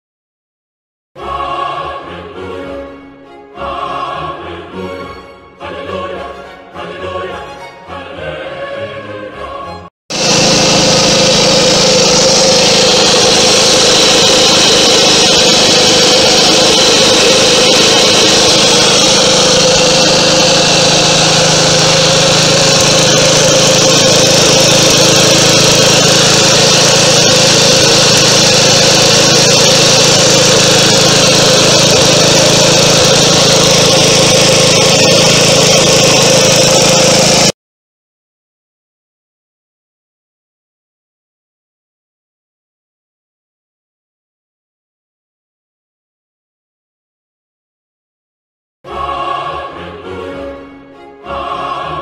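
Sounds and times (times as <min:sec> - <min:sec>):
mower engine running: 0:10.1 - 0:37.6.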